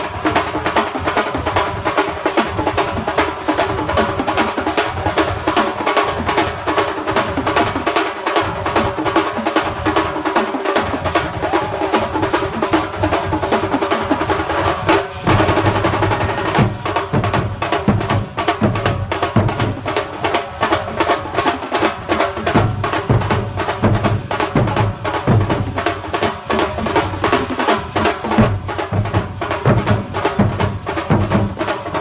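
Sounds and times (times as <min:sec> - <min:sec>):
snare drum rolls: 0:00.0 - 0:32.0
bass drum beats: 0:14.7 - 0:19.8.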